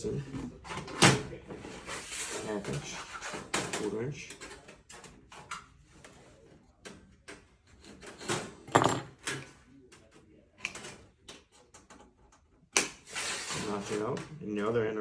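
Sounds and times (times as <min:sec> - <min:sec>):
metal handling knocks: 0:08.6 - 0:09.2.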